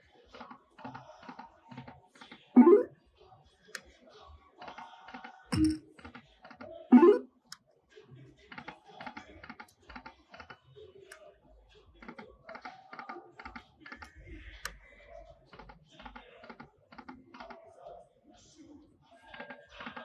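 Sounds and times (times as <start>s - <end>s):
short electronic tones: 2.6s - 2.9s, 6.9s - 7.3s
slot machine reels clicking: 2.6s - 2.9s, 6.9s - 7.2s.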